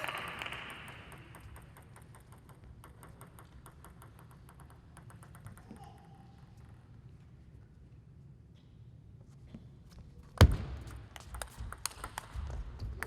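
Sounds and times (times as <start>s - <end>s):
arena applause: 0.0s - 1.3s
light claps and clicks: 0.0s - 2.4s, 11.0s - 13.0s.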